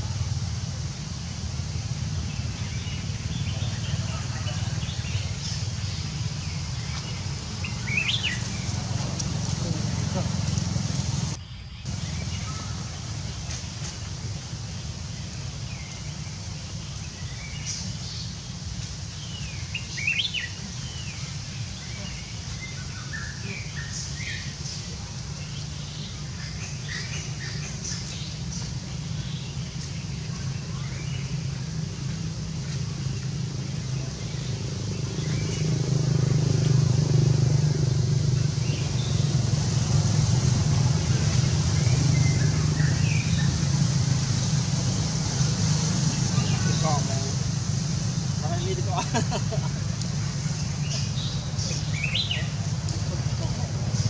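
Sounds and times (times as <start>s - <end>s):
steady low rumble: 0.0s - 23.1s
small birds chirping: 0.0s - 54.0s.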